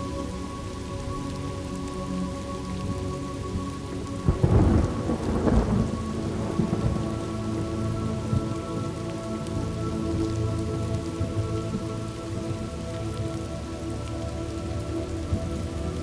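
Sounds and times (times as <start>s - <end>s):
steady rain: 0.0s - 16.0s
thunder crackling and rumbling: 2.9s - 13.4s.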